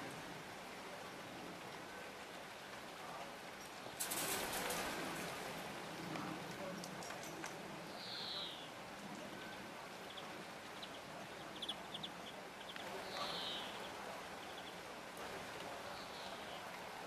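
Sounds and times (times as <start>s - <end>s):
steady rain hiss: 0.0s - 17.0s
small bird calling: 9.5s - 14.8s.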